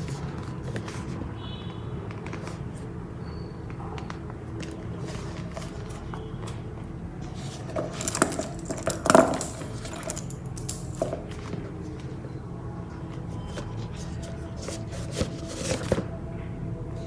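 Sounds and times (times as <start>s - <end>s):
handbag hardware clicking: 7.5s - 11.5s.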